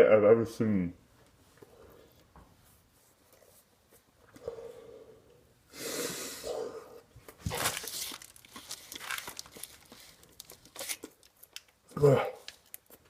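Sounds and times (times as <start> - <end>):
paper wrapper crinkling and tearing: 7.3 - 13.0.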